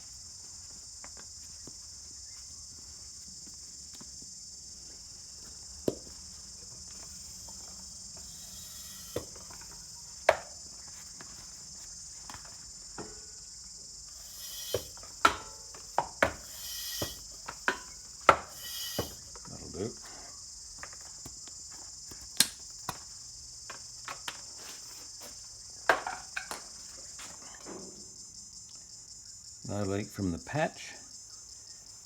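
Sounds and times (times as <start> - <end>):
steady high-pitched hum: 6.9 - 10.5
short noisy bursts: 16.4 - 17.4, 18.5 - 19.3.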